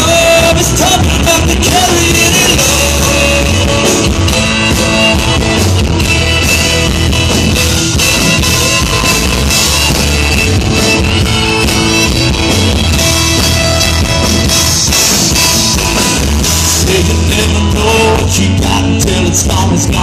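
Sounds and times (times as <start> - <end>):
bass guitar: 0.0 - 20.0
drum kit: 0.0 - 20.0
electric guitar: 0.0 - 20.0.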